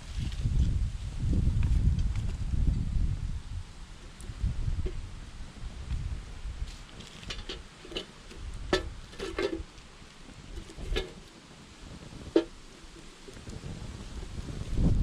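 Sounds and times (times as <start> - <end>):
wind rumble on microphone: 0.0 - 15.0
campfire crackling and popping: 3.9 - 15.0.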